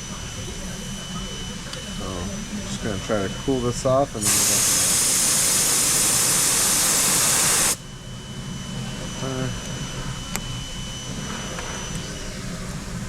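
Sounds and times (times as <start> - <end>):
air blowing hiss: 4.2 - 7.8.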